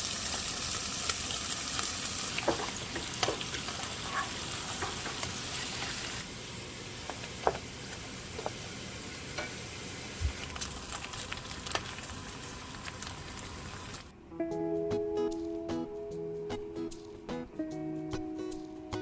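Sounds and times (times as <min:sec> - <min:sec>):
food sizzling in a pan: 0:00.0 - 0:14.1.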